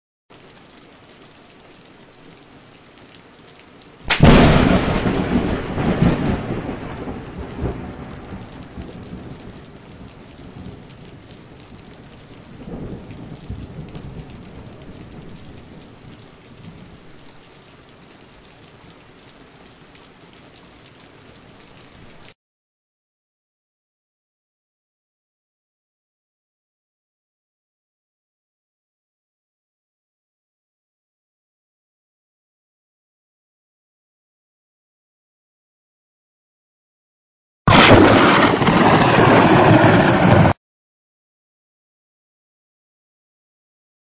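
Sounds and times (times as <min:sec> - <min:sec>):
steady rain: 0:00.3 - 0:22.4, 0:37.7 - 0:40.6
thunder rumbling: 0:04.1 - 0:17.3, 0:37.7 - 0:40.6.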